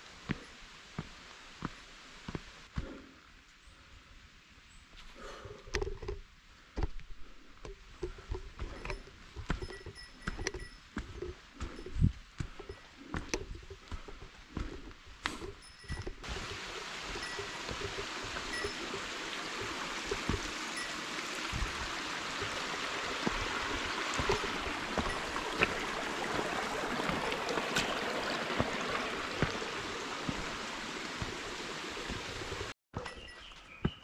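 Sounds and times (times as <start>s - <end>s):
stream water rushing: 16.2s - 32.8s.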